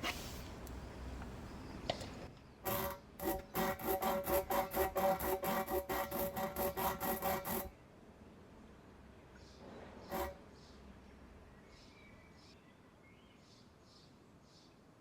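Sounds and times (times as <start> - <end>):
rasp tool rasping in tire: 2.6 - 7.7, 10.1 - 10.4.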